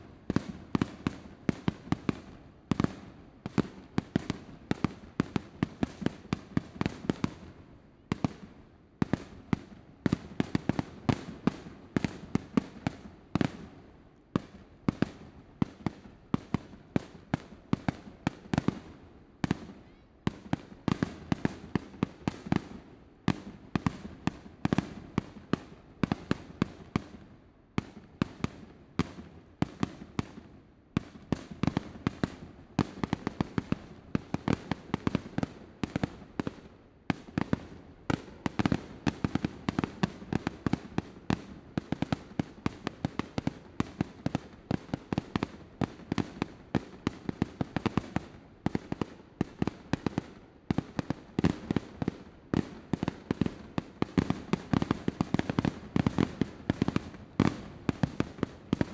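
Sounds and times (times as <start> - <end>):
fireworks bursts and bangs: 0.2 - 13.7, 14.4 - 27.2, 27.8 - 58.9.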